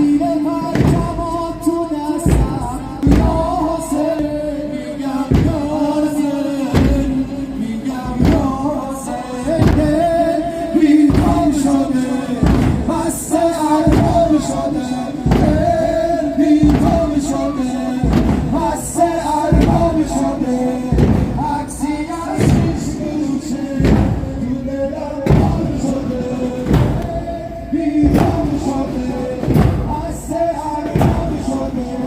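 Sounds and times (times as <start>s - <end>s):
slow drum beat: 9.5s - 32.0s.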